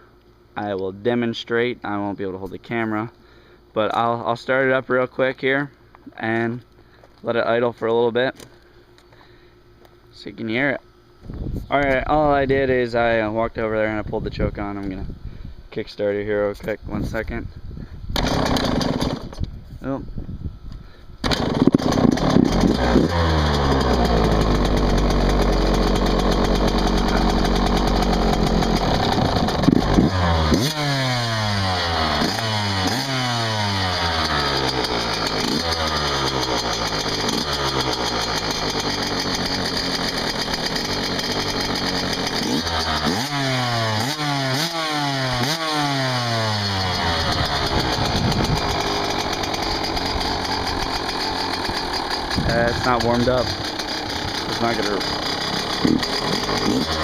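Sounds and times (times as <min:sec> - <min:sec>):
two-stroke engine revving: 0:18.2 - 0:19.4, 0:21.2 - 0:57.0.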